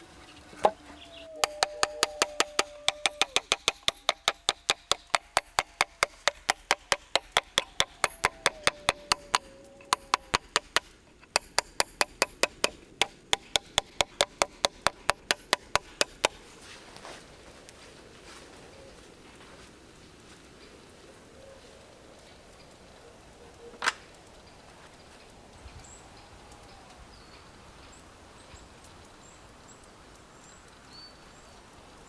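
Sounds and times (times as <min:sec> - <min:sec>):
sharp knocks on wood: 0:01.4 - 0:16.4.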